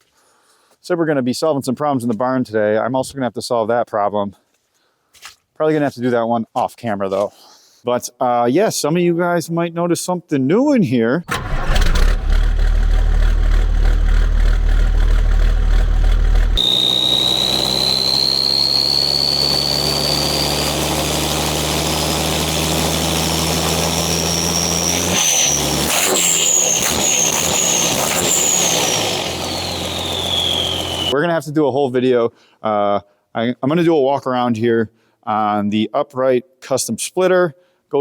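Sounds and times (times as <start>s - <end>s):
engine humming: 11.3s - 31.2s
high whine: 13.0s - 31.2s.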